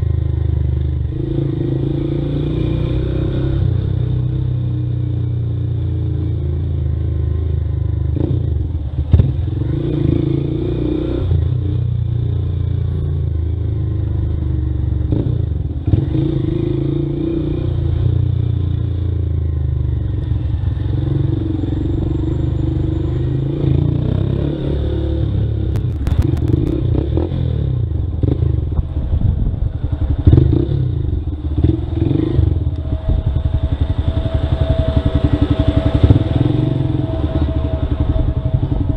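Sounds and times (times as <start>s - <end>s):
motorcycle engine running: 25.3s - 38.9s.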